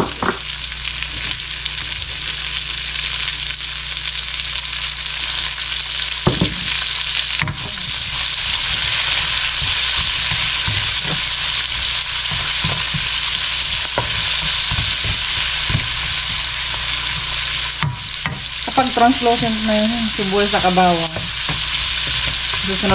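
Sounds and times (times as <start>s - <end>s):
onion sizzling in hot oil: 0.0s - 22.9s
wooden spatula scraping a pan: 7.6s - 22.9s.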